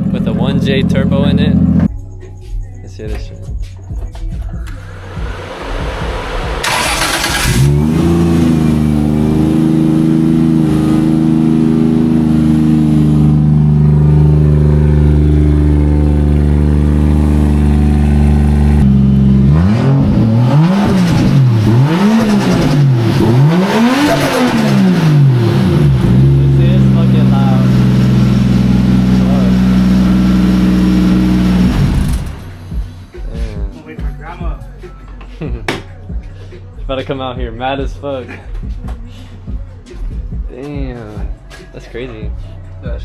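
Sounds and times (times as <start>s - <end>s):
car engine revving: 0.0s - 1.9s, 4.6s - 33.8s
car engine starting and idling: 0.0s - 2.1s, 3.9s - 35.2s.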